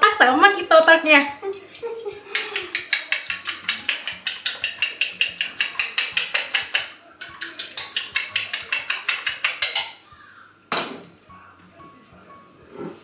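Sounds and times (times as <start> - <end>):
eggs beaten in a bowl: 0.1 - 10.2.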